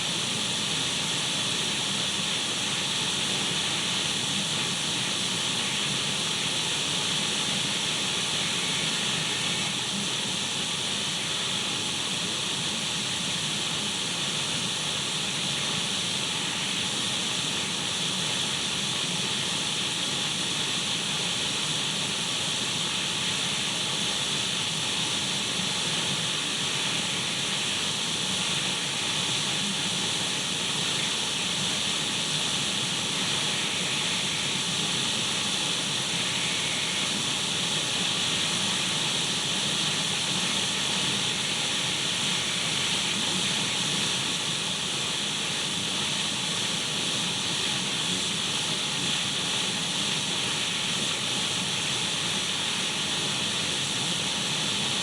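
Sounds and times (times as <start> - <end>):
radio static hiss: 33.1 - 35.2, 36.1 - 38.2.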